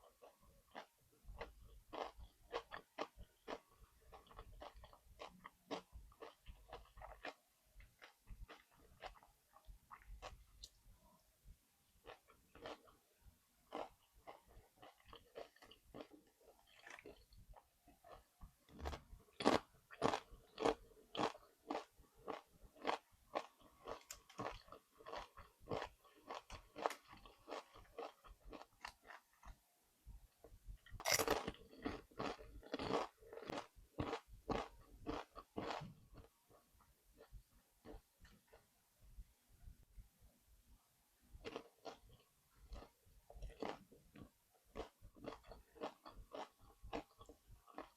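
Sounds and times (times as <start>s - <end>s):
crunchy chewing: 0.0s - 10.8s, 12.0s - 13.0s, 13.7s - 29.6s, 30.9s - 38.7s, 41.4s - 47.9s.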